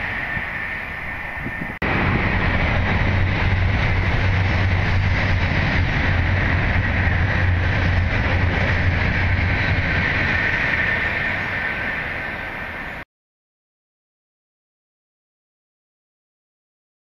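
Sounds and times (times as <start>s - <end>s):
high-speed train passing: 0.0s - 13.1s
low hum: 1.8s - 13.0s.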